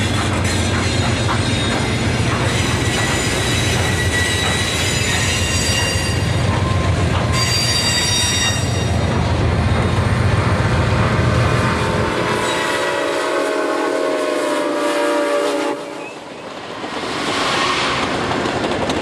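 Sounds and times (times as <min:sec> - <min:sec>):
freight train rumbling past: 0:00.0 - 0:19.0
high-pitched wheel squeal: 0:02.5 - 0:06.8, 0:07.4 - 0:09.0.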